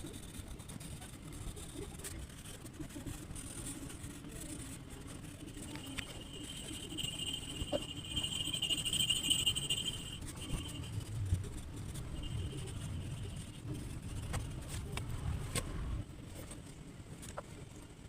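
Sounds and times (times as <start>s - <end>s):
high insect-like trill: 5.7s - 11.1s.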